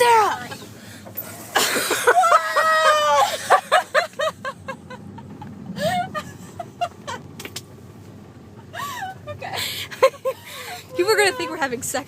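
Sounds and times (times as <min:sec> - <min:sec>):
low rumble of moving train: 0:00.0 - 0:12.0
woman laughing: 0:01.6 - 0:07.3, 0:08.7 - 0:11.7.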